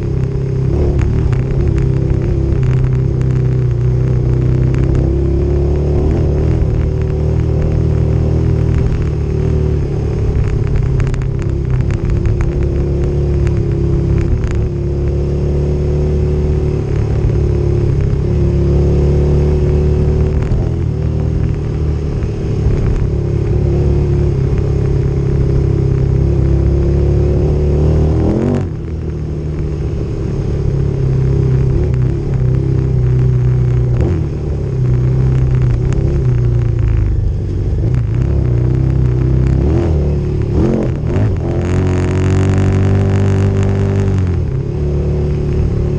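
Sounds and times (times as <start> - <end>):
motorcycle engine droning: 0.0 - 45.9.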